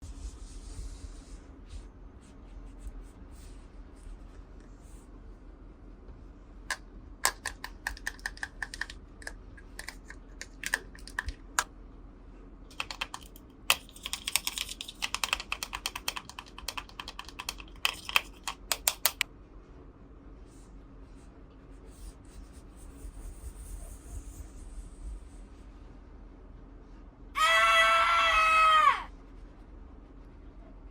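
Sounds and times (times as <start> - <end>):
plastic toy pieces clicking: 7.2 - 9.0.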